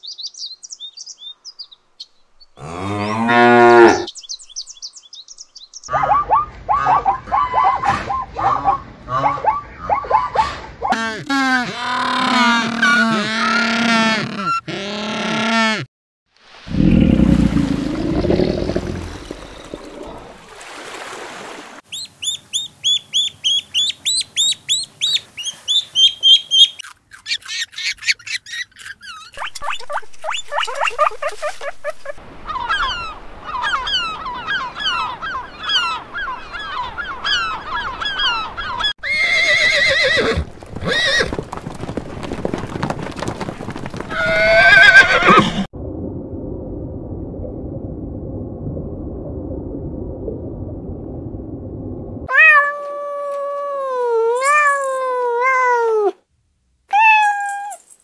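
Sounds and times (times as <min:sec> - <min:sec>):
repeated animal calls: 0:05.9 - 0:15.9
horse whinnying: 0:39.0 - 0:41.4, 0:44.1 - 0:45.7.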